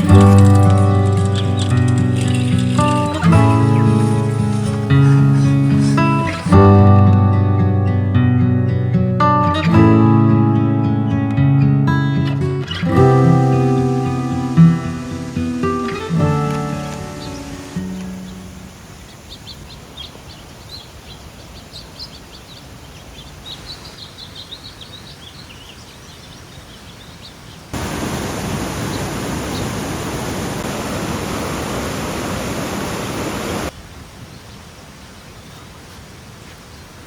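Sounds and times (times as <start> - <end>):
loud rush of water: 0.0 - 1.8, 12.7 - 23.8, 27.7 - 37.0
small birds chirping: 0.0 - 6.8, 12.2 - 30.6, 32.6 - 37.0.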